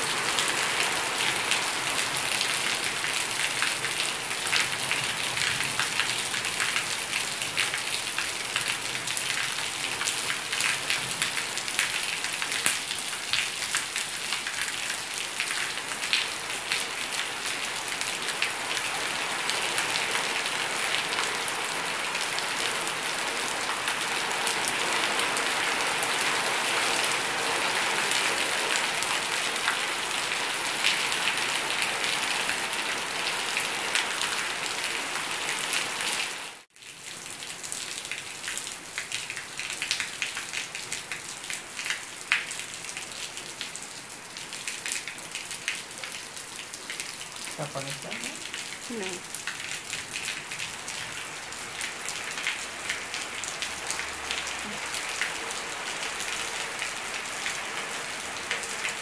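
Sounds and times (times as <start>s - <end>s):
raindrops ticking close by: 36.6s - 59.0s
heavy rain hissing: 47.6s - 49.2s.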